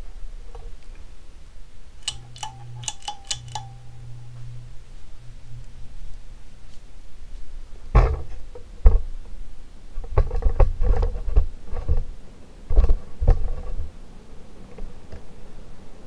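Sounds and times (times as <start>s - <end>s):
faint motor hum: 0.7s - 8.8s.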